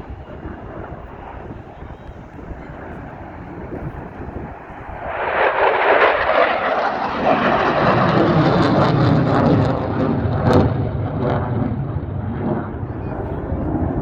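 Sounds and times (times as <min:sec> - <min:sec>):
airplane low pass: 0:00.0 - 0:14.0.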